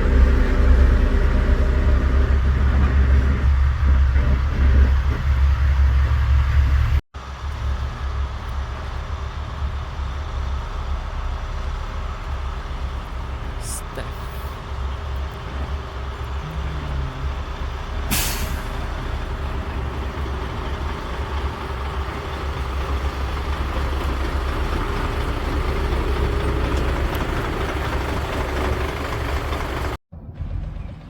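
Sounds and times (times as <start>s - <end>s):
heavy diesel engine running: 0.0s - 31.0s
air hiss: 18.1s - 18.8s.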